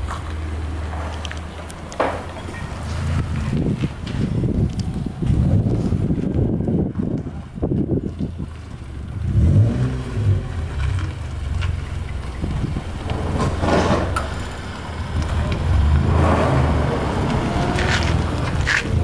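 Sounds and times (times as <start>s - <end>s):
car engine running: 8.4s - 19.0s.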